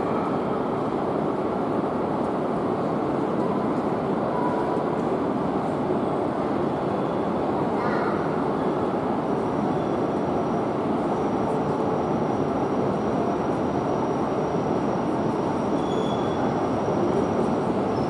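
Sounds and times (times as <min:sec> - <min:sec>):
train rumble and hum: 0:00.0 - 0:18.0.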